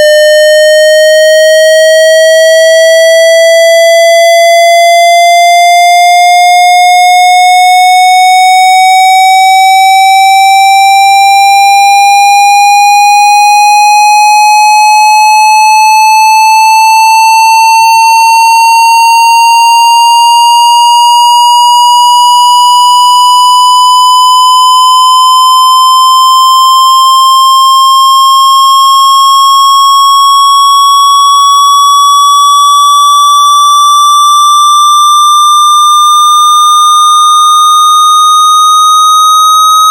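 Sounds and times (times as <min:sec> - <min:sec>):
rising electronic tone: 0:21.5 - 0:26.9, 0:35.4 - 0:39.9.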